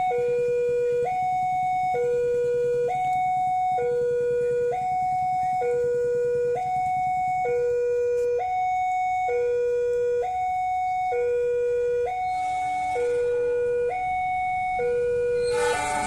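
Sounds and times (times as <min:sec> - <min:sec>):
two-tone emergency siren: 0:00.0 - 0:16.0.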